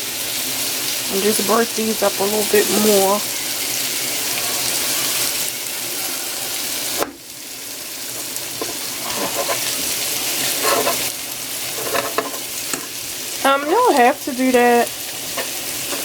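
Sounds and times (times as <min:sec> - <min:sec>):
food sizzling in oil: 0:00.0 - 0:16.0
utensil scraping and knocking pan: 0:08.2 - 0:09.8, 0:10.4 - 0:13.0.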